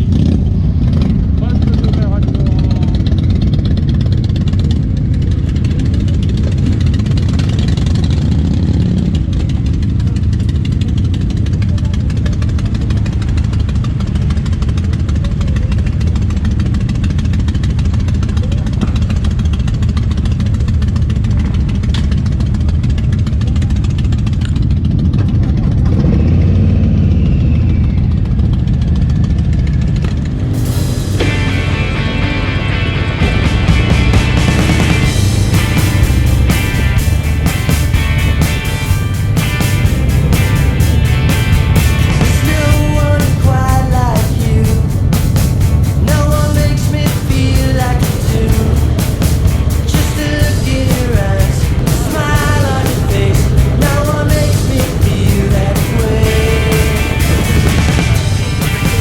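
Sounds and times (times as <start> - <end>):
motorcycle engines idling: 0.0 - 59.0.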